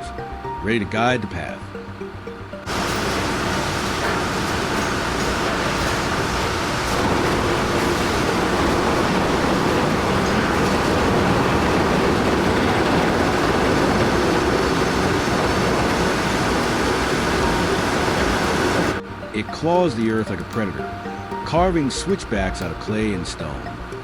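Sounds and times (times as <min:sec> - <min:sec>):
heavy diesel machinery rumbling: 0:02.0 - 0:19.0.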